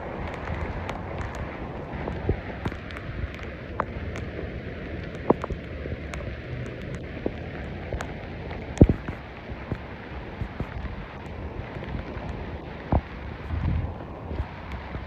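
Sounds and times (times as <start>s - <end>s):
heavy rain on pavement: 0.0s - 15.0s
single raindrop taps: 0.2s - 4.3s, 5.0s - 9.8s.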